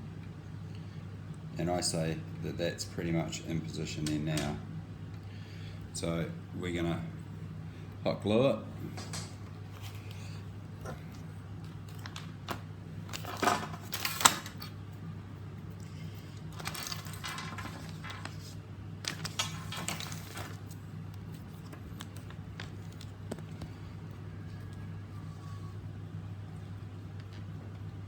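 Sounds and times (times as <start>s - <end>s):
steady low hum: 0.0s - 28.0s
crackly handling noise: 8.8s - 28.0s
plastic parts clicking and rattling: 11.8s - 14.8s, 16.5s - 20.8s.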